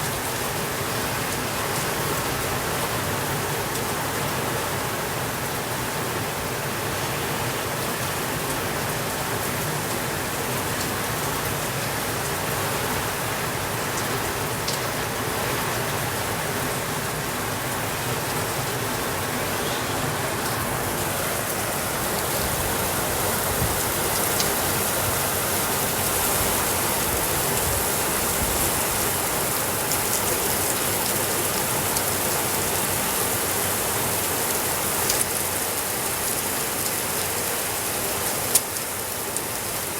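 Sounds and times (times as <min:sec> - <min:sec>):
steady rain hissing: 0:00.0 - 0:39.9
sharp raindrop ticks: 0:34.5 - 0:37.3, 0:38.2 - 0:39.6.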